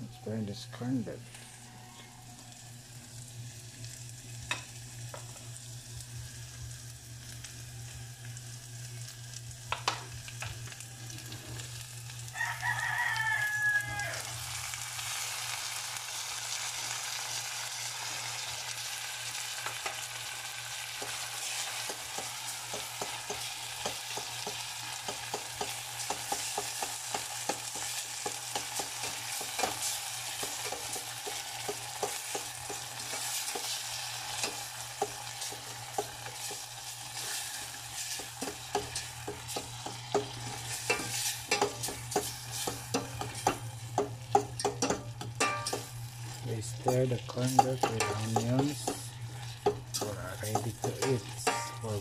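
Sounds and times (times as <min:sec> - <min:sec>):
meat sizzling in a pot: 0:00.0 - 0:52.0
rooster crowing: 0:01.4 - 0:02.7, 0:12.3 - 0:14.6
fork tapping on a plate: 0:40.9 - 0:42.3, 0:42.9 - 0:45.9
utensil scraping a pot: 0:44.6 - 0:52.0.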